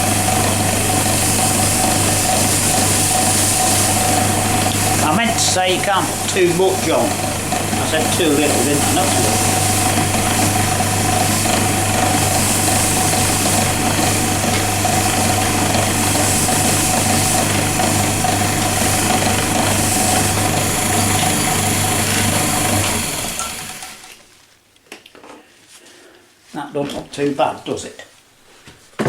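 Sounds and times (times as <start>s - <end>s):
lathe motor running: 0.0s - 24.2s.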